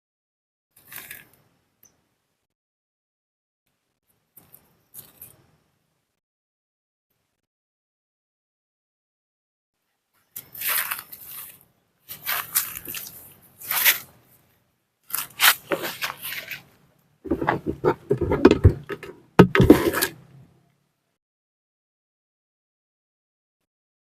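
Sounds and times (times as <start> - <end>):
heavy bumps: 17.3 - 20.1.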